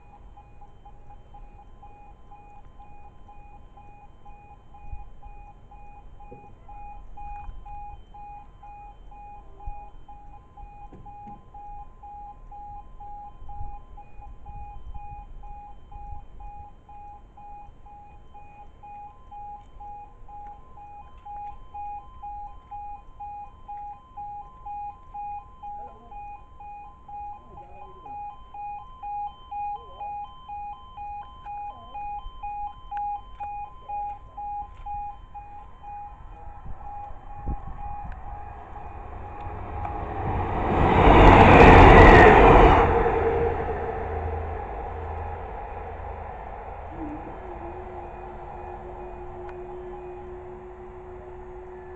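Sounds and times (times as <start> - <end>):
warbling two-tone crossing alarm: 0.0 - 51.9
low rumble: 33.8 - 51.9.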